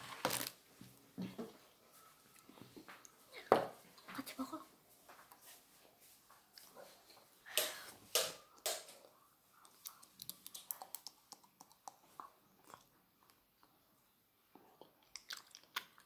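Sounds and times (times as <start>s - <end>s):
small wet mouth clicks: 9.6s - 12.9s
child biting and chewing: 14.7s - 16.0s.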